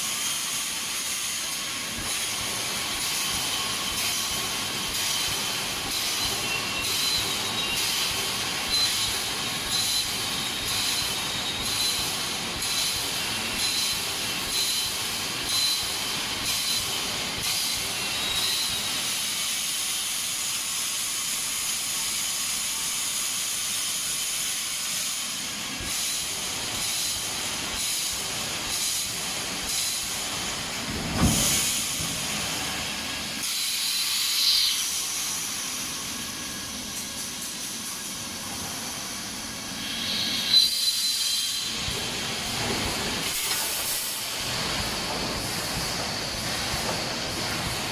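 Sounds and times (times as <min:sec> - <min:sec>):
compressed air hiss: 0:16.0 - 0:47.9.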